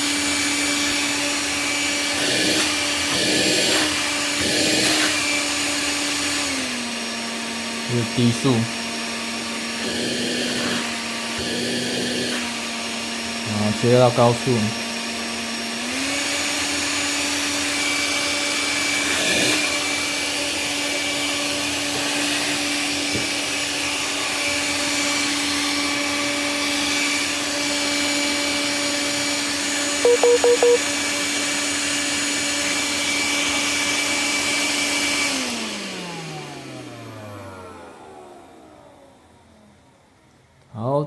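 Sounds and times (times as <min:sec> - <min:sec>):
vacuum cleaner motor whine: 0:00.0 - 0:40.6
short tone blips: 0:30.0 - 0:30.8.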